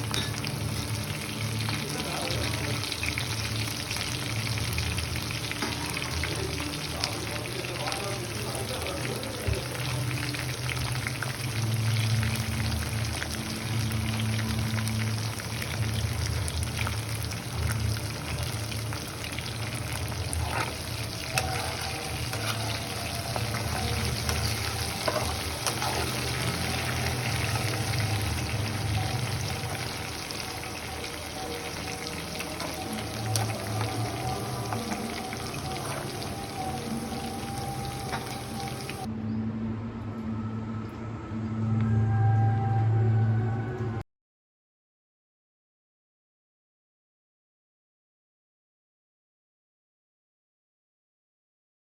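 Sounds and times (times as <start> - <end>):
food deep-frying in oil: 0.0 - 39.1.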